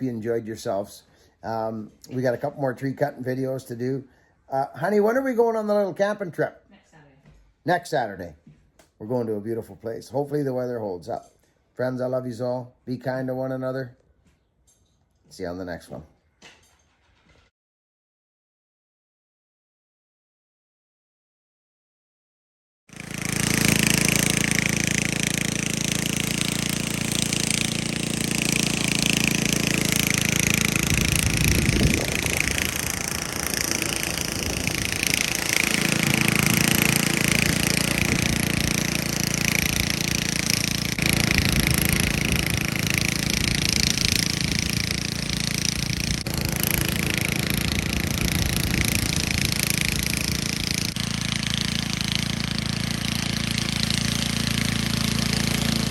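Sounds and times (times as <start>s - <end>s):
chainsaw running: 22.9s - 55.9s.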